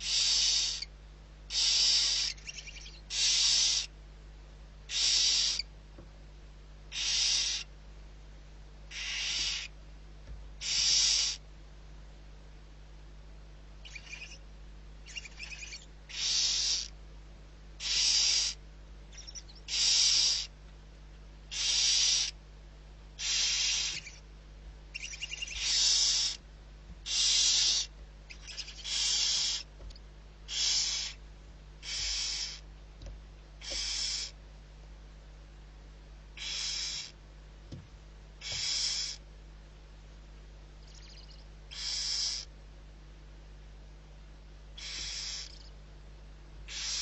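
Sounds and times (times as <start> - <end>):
barn owl hissing calls: 0.0 - 0.9, 1.5 - 4.0, 4.9 - 5.7, 6.9 - 7.7, 8.9 - 9.8, 10.6 - 11.4, 13.8 - 14.4, 15.0 - 17.0, 17.8 - 20.6, 21.5 - 22.4, 23.2 - 24.3, 24.9 - 26.4, 27.0 - 29.7, 30.5 - 31.2, 31.8 - 32.7, 33.6 - 34.4, 36.4 - 37.2, 38.4 - 39.3, 40.8 - 42.5, 44.8 - 45.7, 46.6 - 47.0.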